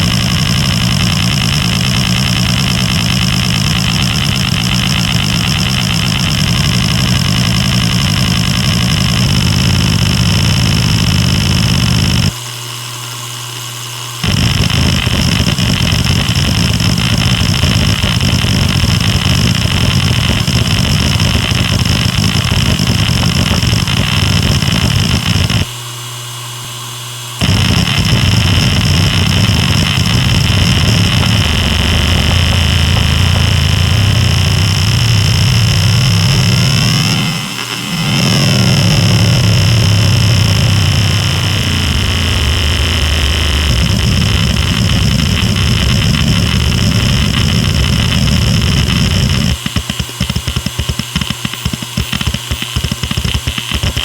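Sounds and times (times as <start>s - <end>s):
hard drive seek chatter: 0.0s - 12.4s, 14.2s - 25.8s, 27.4s - 54.0s
hard drive spindle whine: 0.0s - 54.0s.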